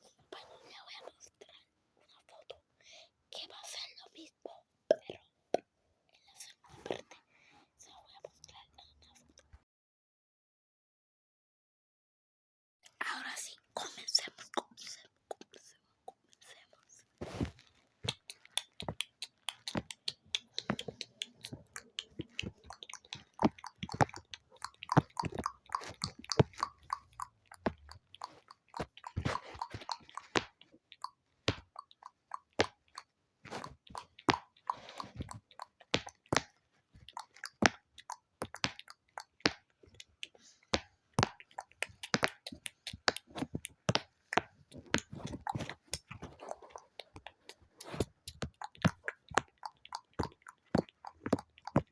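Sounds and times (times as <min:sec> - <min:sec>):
wet mouth clicks and smacks: 0:17.3 - 0:51.9.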